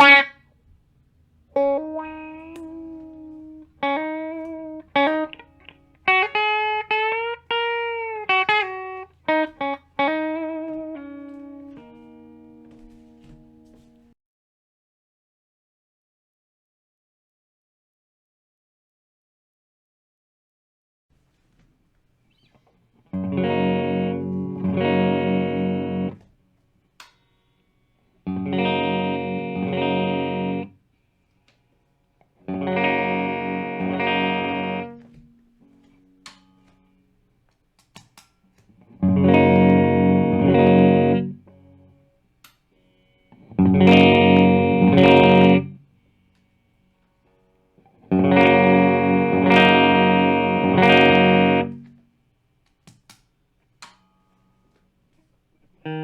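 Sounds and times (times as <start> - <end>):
electric guitar strummed chords: 0.0 - 14.1, 23.0 - 30.9, 31.5 - 37.3, 38.6 - 42.2, 42.8 - 52.1, 55.7 - 56.0.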